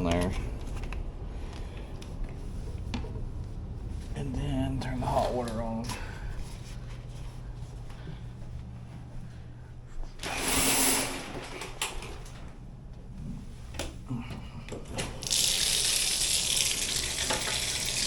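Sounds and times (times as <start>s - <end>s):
water running from tap: 15.2s - 18.0s.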